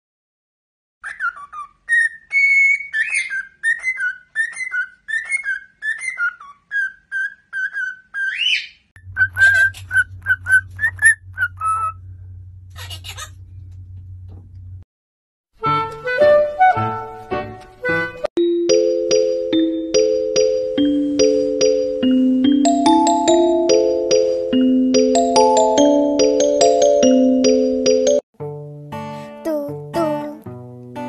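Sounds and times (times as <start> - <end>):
cockatiel whistling: 1.0 - 12.0
steady low hum: 9.1 - 14.8.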